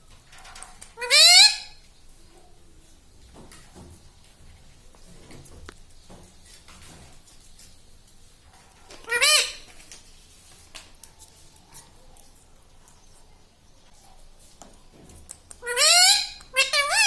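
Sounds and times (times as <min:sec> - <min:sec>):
faint clicks and rustles: 0:00.0 - 0:01.0, 0:01.8 - 0:15.7
parrot screeching: 0:01.0 - 0:01.8, 0:09.0 - 0:09.7, 0:15.6 - 0:17.0.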